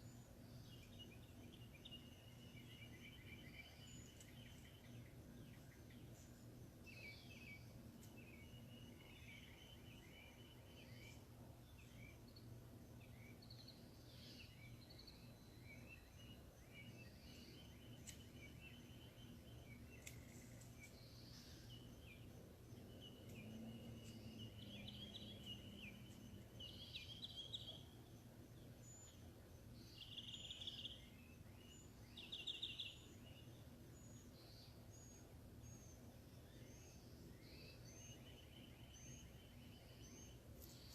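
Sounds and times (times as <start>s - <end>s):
steady low hum: 0.0s - 40.9s
birds chirping and calling: 13.0s - 36.0s.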